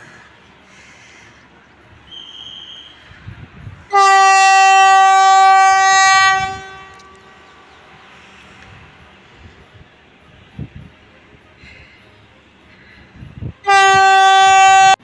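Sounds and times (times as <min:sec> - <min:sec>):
train horn blast: 0:03.8 - 0:07.5, 0:13.5 - 0:15.0.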